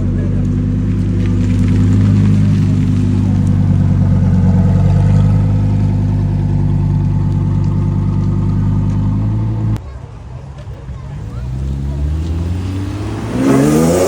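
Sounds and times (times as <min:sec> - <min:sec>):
car engine running loudly: 0:00.0 - 0:09.8.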